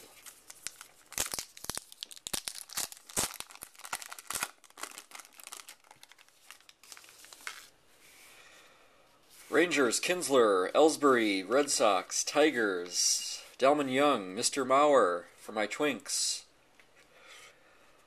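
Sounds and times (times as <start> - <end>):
plastic wrapper crinkling: 0.0 - 7.8.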